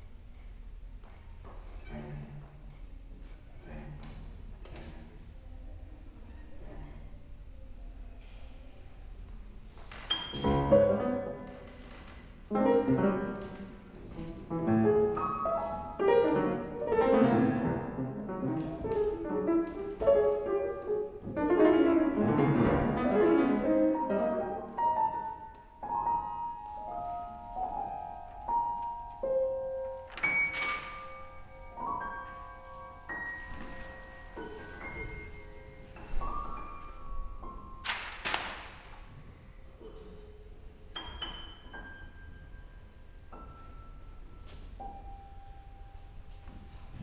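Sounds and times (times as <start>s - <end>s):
piano trio chamber music: 9.5s - 38.1s, 39.1s - 47.0s
jagged piano chords: 10.1s - 38.4s.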